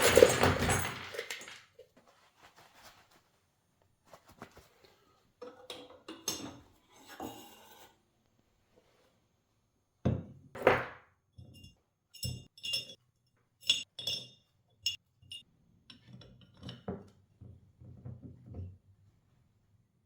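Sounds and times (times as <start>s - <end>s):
scrap copper clinking and knocking: 0.0s - 1.6s, 11.4s - 13.0s, 13.6s - 15.4s.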